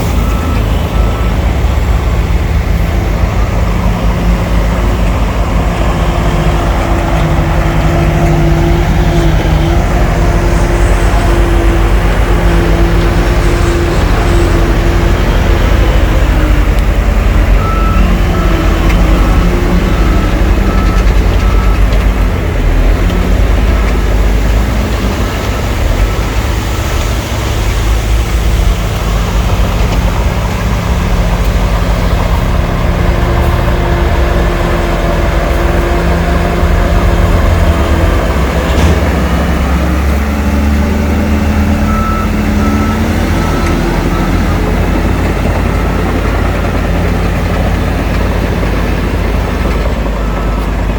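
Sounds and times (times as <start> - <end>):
reversing alarm beeping: 0.0 - 26.2, 28.6 - 50.9
heavy diesel engines under load: 0.0 - 50.9.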